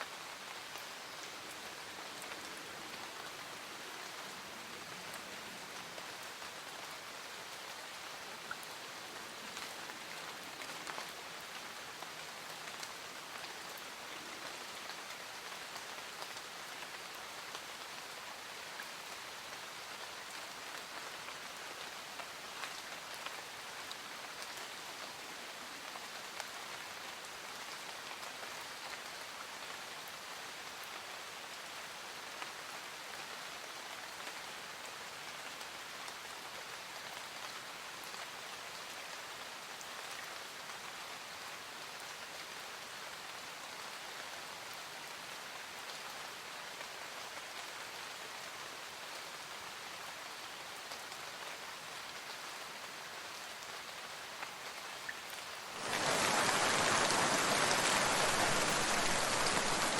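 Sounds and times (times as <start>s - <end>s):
steady rain falling: 0.0s - 59.9s
loud dense rushing noise: 55.8s - 59.9s.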